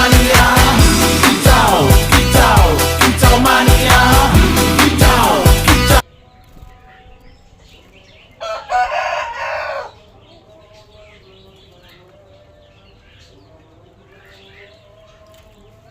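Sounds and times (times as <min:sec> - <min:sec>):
song playing: 0:00.0 - 0:06.0
small birds chirping: 0:06.0 - 0:08.7, 0:09.4 - 0:15.9
rooster crowing: 0:08.4 - 0:10.1.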